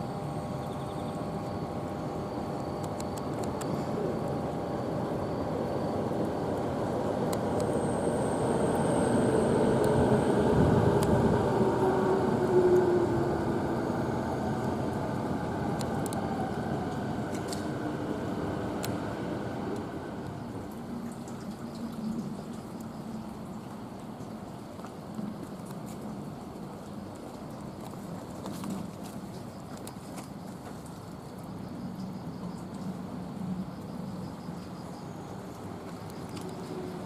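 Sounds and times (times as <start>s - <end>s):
train passing: 0.0s - 21.2s, 34.4s - 37.0s.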